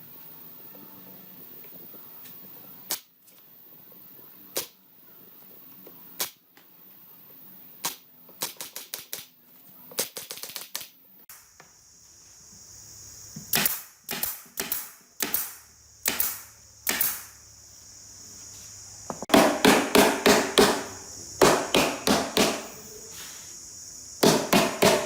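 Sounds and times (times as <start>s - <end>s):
hammering knocks: 19.1s - 22.8s, 24.2s - 25.0s.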